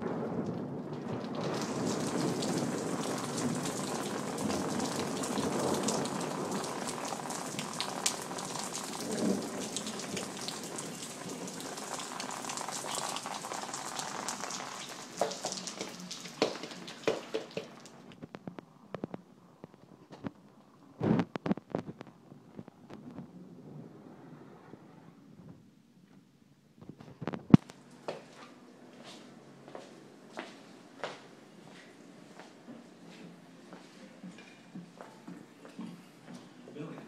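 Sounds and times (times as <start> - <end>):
heavy rain on hard surfaces: 0.0 - 18.3
scattered water drips: 0.9 - 18.3.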